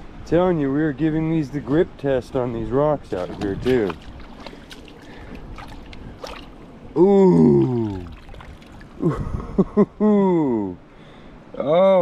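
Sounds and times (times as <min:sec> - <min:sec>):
creek water trickling: 0:01.0 - 0:09.6
man's long falling ooh: 0:06.9 - 0:08.1.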